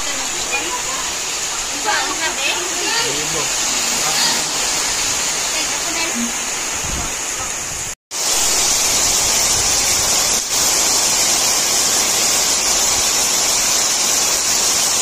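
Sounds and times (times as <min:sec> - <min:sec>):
heavy rain falling: 0:00.0 - 0:15.0
runoff pouring off a roof: 0:00.0 - 0:15.0.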